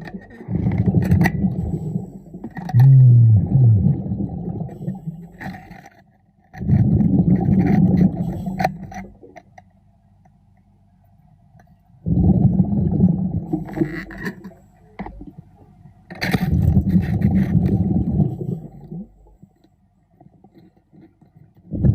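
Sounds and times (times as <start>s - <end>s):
diver exhaling bubbles underwater: 0.3s - 5.3s, 6.6s - 9.2s, 12.0s - 13.9s, 16.5s - 19.2s.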